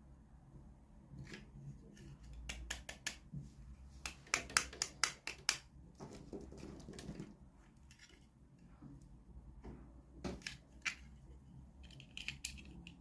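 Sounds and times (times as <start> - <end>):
toy packaging rustling: 7.8 - 8.3, 10.3 - 13.0.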